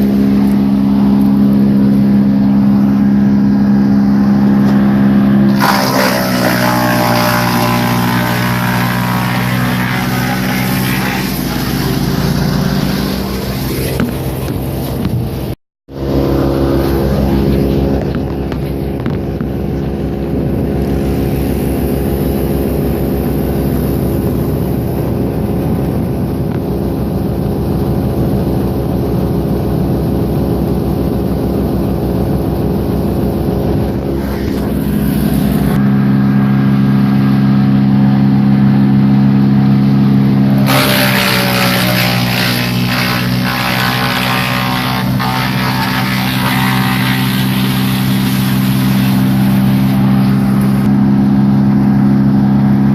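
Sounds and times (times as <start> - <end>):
loud rough noise: 0.0 - 27.1, 32.9 - 35.8, 40.4 - 51.0
wood chipper engine running: 0.0 - 52.9.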